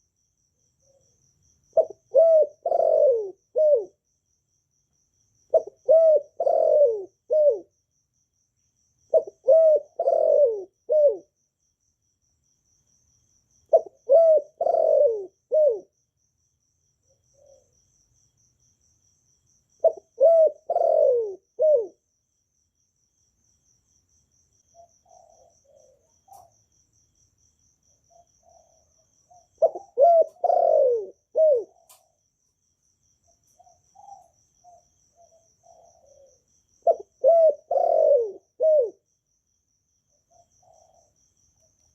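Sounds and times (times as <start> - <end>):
dove cooing: 1.7 - 4.0, 5.5 - 7.7, 9.1 - 11.3, 13.7 - 16.0, 17.1 - 17.8, 19.8 - 22.0, 24.8 - 26.5, 28.1 - 32.2, 33.6 - 39.1, 40.3 - 41.2.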